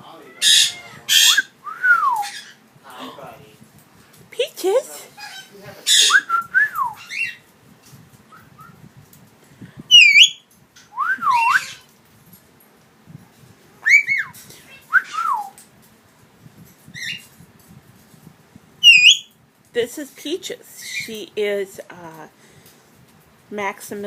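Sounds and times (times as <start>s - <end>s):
high squeaky calls: 0.3s - 1.6s, 7.0s - 7.4s, 9.9s - 10.4s, 18.8s - 19.3s
parrot chirping: 0.3s - 1.6s, 2.2s - 2.6s, 5.2s - 7.4s, 9.9s - 10.4s, 11.3s - 11.9s, 13.9s - 15.5s, 16.9s - 17.3s, 18.8s - 19.3s, 20.8s - 21.1s.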